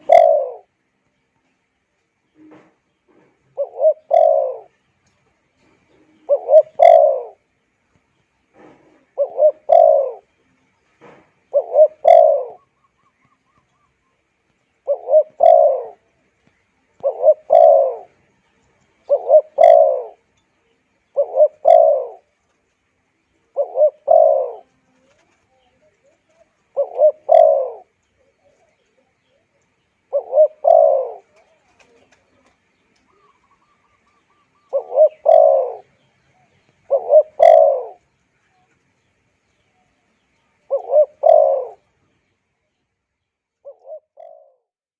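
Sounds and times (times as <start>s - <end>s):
dove cooing: 0.0s - 0.7s, 2.4s - 4.8s, 5.6s - 7.5s, 8.6s - 10.3s, 11.0s - 14.0s, 14.8s - 16.2s, 16.8s - 20.3s, 21.0s - 22.4s, 23.3s - 38.7s, 40.6s - 42.0s, 43.6s - 44.7s.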